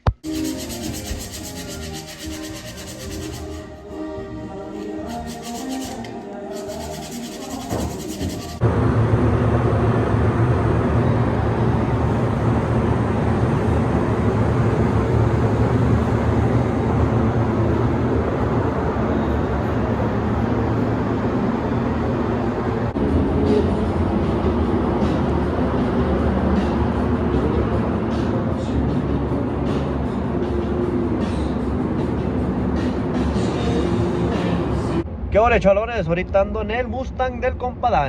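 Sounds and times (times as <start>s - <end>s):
shop machinery droning: 0.2s - 25.1s.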